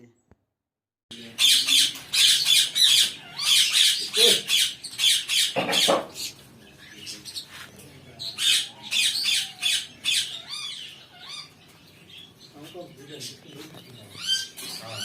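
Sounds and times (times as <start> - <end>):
birds squawking: 1.1 - 15.0.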